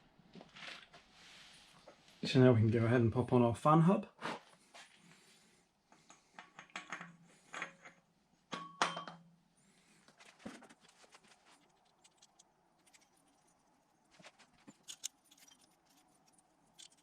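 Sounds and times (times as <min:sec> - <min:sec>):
metallic clicks and clinks: 0:14.7 - 0:17.0.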